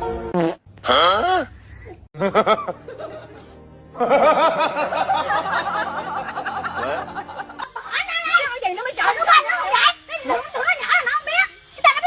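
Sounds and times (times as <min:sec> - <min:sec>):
laughter in bursts: 0:02.2 - 0:07.8
background music: 0:02.2 - 0:12.0.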